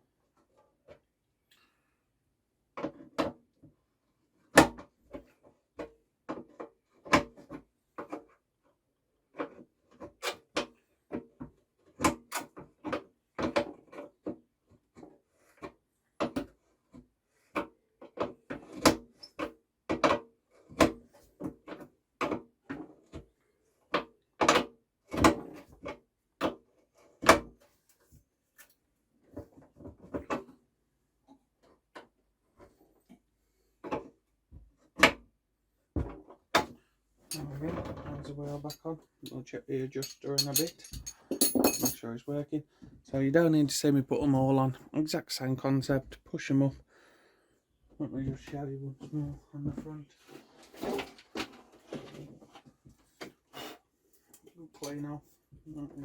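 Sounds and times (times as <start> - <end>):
metal parts clicking and clattering: 37.3 - 37.6, 40.0 - 42.0.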